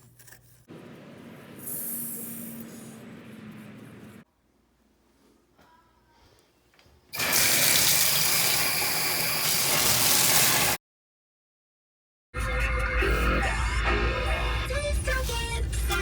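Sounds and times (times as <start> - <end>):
water running from tap: 7.2 - 10.8
music: 12.4 - 16.0.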